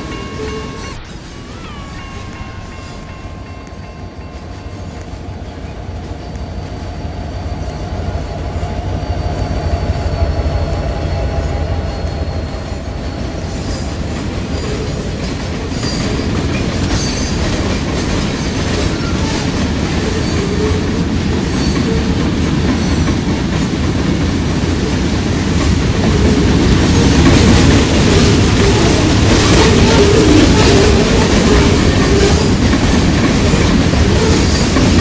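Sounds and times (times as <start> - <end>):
rail cars rolling past: 0.0 - 35.0
wheels clicking over rail joints: 12.8 - 35.0.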